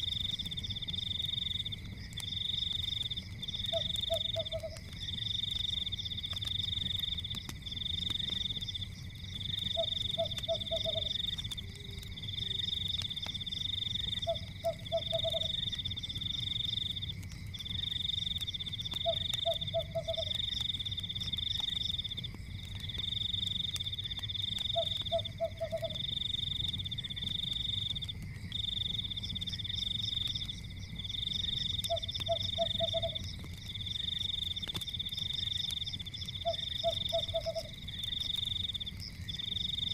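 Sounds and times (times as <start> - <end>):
high pulsing insect trill: 0.0 - 22.3, 23.1 - 39.9
wood fire crackling: 0.0 - 39.9
frog croaking: 3.6 - 4.9, 9.5 - 12.9, 14.0 - 15.9, 19.0 - 20.4, 24.6 - 26.0, 31.7 - 33.3, 36.3 - 38.4.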